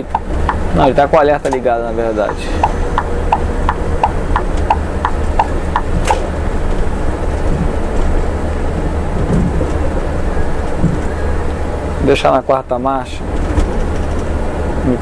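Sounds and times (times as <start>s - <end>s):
turn signal relay clicking: 0.0s - 0.6s, 2.3s - 6.2s
bus engine running: 0.0s - 15.0s.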